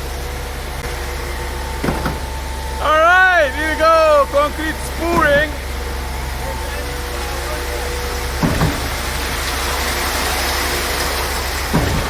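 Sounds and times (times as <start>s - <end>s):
diesel engine droning: 0.0s - 12.0s
short thump: 8.4s - 9.1s, 11.7s - 12.0s.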